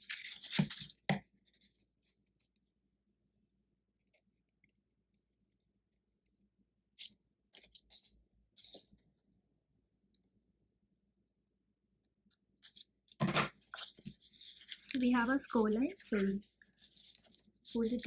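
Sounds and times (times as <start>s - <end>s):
card stock rustling: 0.0s - 1.8s, 12.7s - 18.0s.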